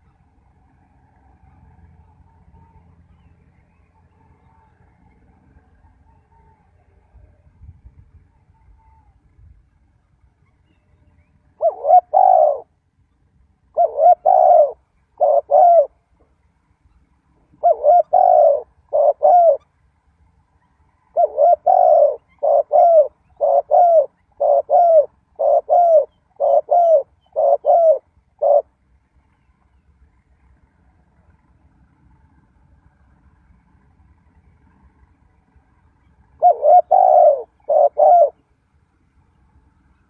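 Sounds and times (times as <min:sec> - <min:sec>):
dove cooing: 0:11.6 - 0:12.8, 0:13.7 - 0:16.0, 0:17.5 - 0:19.7, 0:21.1 - 0:28.8, 0:36.2 - 0:38.4.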